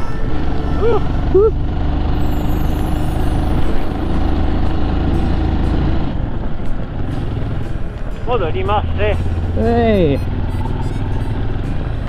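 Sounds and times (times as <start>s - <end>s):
motorcycle engine droning: 0.0s - 12.0s.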